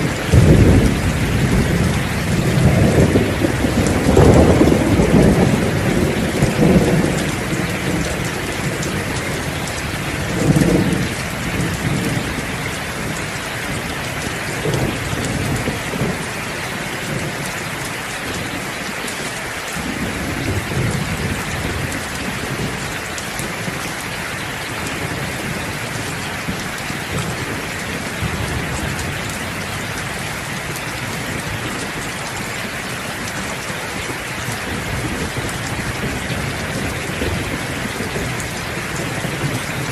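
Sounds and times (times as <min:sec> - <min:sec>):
rolling thunder: 0:00.0 - 0:18.6, 0:24.8 - 0:39.9
heavy rain: 0:00.0 - 0:39.9.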